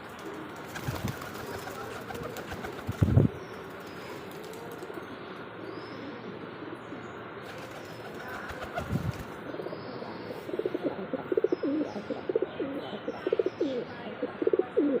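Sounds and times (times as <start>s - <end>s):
pigeons cooing: 8.2s - 15.0s.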